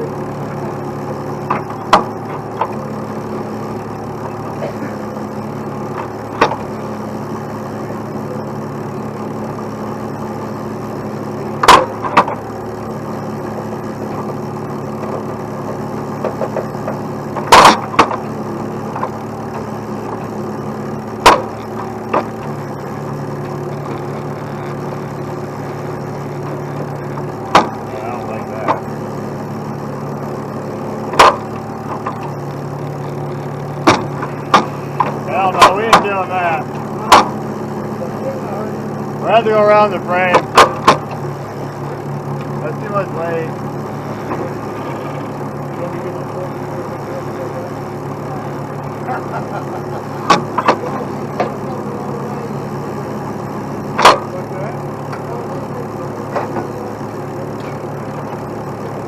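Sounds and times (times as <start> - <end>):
truck diesel engine idling: 0.0 - 59.0
sharp knocks from rigging: 16.2 - 18.3, 26.8 - 27.8, 33.8 - 36.1.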